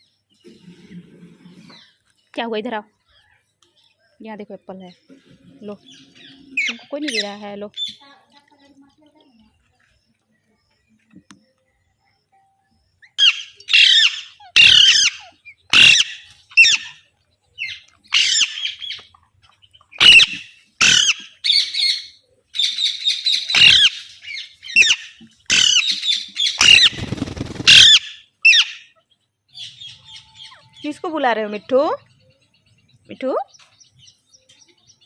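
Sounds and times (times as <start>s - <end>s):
parrot squawking: 5.8s - 8.0s, 13.2s - 19.0s, 20.0s - 29.0s.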